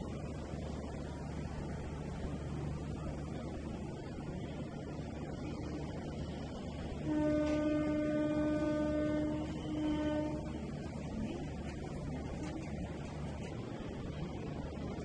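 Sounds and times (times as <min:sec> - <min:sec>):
train running rumble: 0:00.0 - 0:15.0
train horn blasts: 0:06.9 - 0:11.2.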